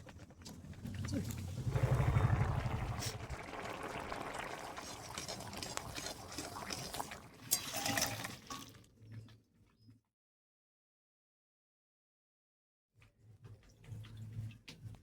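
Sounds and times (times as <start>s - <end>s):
vegetables simmering and bubbling: 0.0s - 9.7s.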